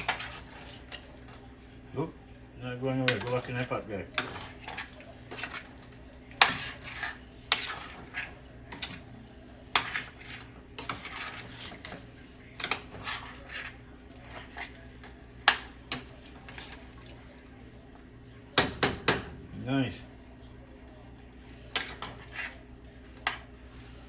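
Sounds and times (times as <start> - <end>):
utensil scraping a pot: 0.0 - 1.1, 2.7 - 17.2, 21.6 - 24.0.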